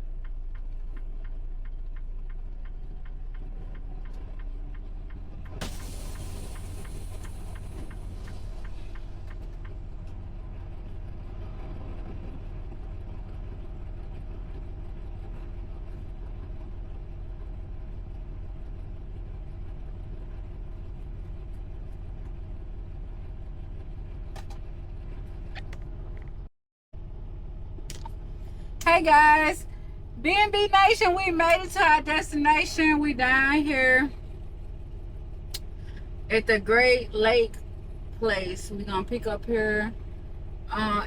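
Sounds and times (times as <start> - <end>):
truck engine rumbling: 0.0 - 41.0
light regular ticks: 0.2 - 5.6.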